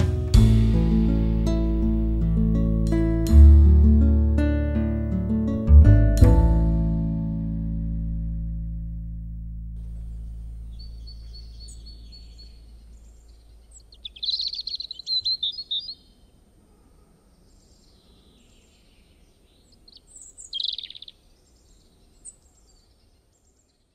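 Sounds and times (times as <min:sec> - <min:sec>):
faint background noise: 0:06.0 - 0:23.9
small birds chirping: 0:09.8 - 0:23.9.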